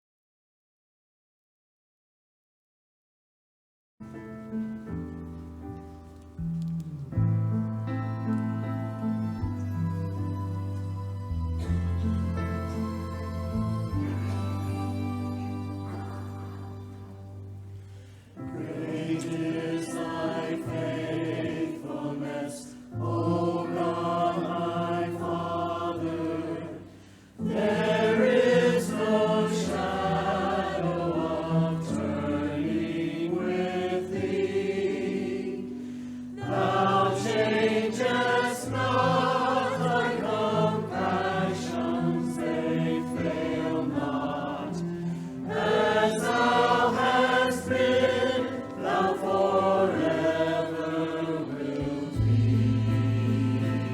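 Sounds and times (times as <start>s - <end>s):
low steady accompaniment: 4.2s - 53.9s
group singing church song: 11.6s - 53.9s.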